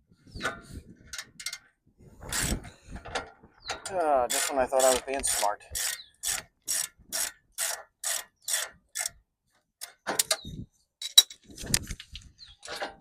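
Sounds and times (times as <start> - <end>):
ratchet wrench ratcheting: 4.3 - 9.2
metal clinks and knocks: 11.0 - 11.5.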